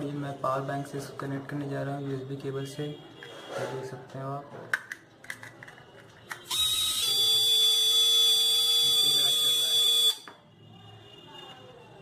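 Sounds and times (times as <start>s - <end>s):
small motors whining: 6.5s - 10.2s.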